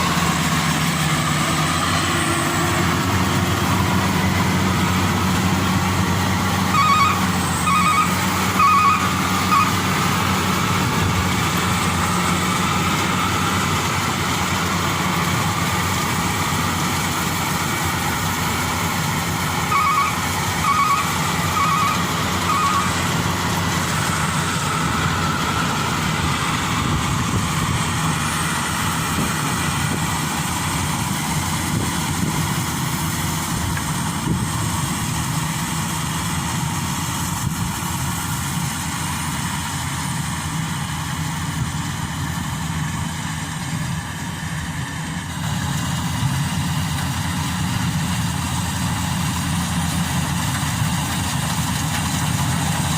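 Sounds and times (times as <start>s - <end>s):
heavy vehicle engine running: 0.0s - 52.9s.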